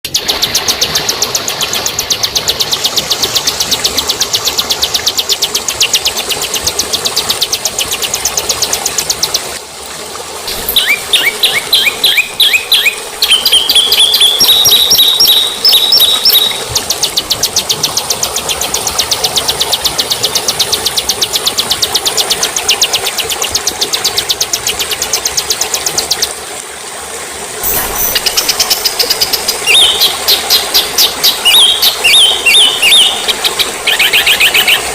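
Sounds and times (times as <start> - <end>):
bird chirps and whistled notes: 10.5 - 17.9, 27.6 - 34.8
bird rattling trill: 10.5 - 26.2, 27.6 - 34.8.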